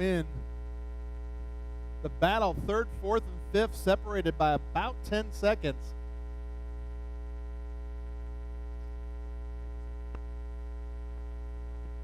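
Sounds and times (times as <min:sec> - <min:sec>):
electrical mains hum: 0:00.0 - 0:12.0
faint click: 0:09.8 - 0:10.3.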